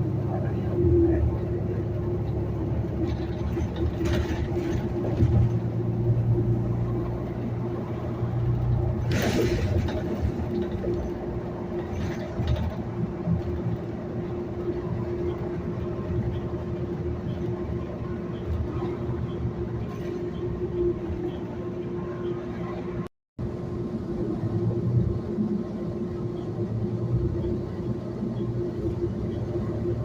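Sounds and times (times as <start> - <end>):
bus engine and road rumble: 0.0 - 30.0.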